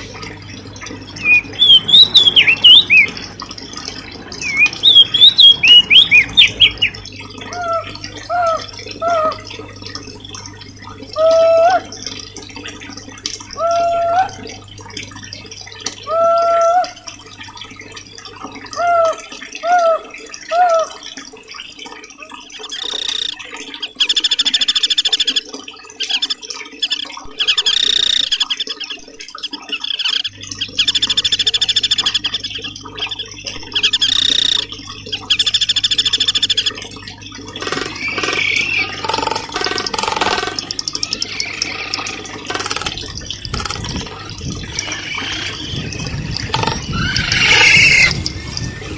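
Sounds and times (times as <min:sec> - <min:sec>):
faint rush of water: 0:00.0 - 0:48.9
songbird whistles and trills: 0:01.2 - 0:03.1, 0:04.4 - 0:07.0, 0:37.6 - 0:40.2, 0:44.4 - 0:48.9.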